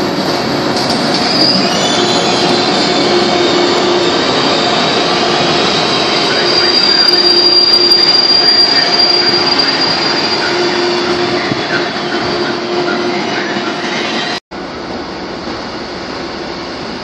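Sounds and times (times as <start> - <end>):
train rolling rumble: 0.0 - 17.0
high wheel squeal: 1.2 - 14.4.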